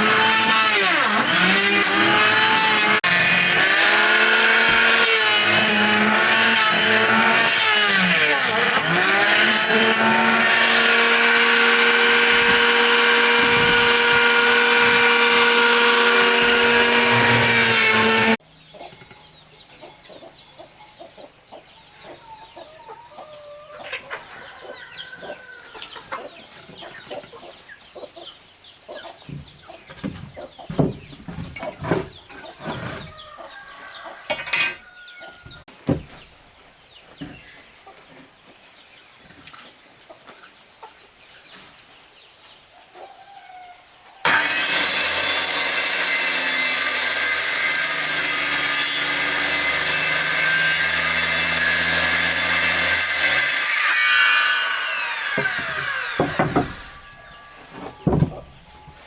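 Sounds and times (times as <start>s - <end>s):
power tool motor running: 0.0s - 18.4s, 44.3s - 57.5s
chickens clucking: 18.6s - 36.2s, 37.0s - 38.6s, 39.2s - 43.8s.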